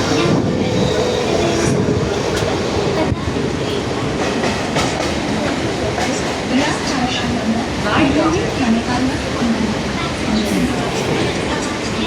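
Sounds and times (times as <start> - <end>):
train wheels and carriage rattling: 0.0 - 12.0.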